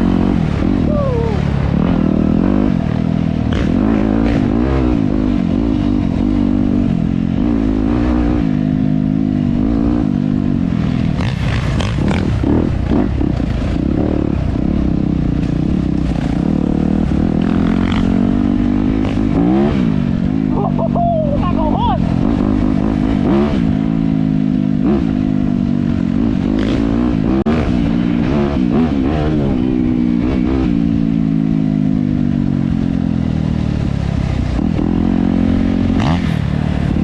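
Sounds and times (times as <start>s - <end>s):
dirt bike engine revving: 0.0s - 33.2s, 34.4s - 37.0s.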